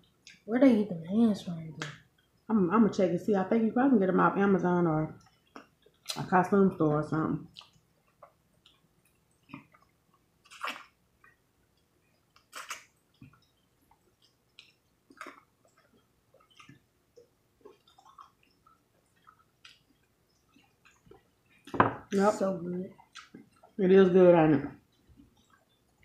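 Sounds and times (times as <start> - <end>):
crunchy chewing of fried chicken: 7.6 - 21.7.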